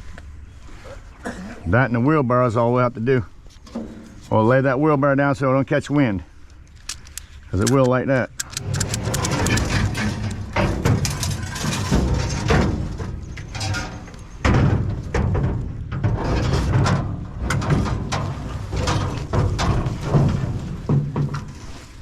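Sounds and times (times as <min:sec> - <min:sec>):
scrap knocking and clattering: 0:08.4 - 0:22.0.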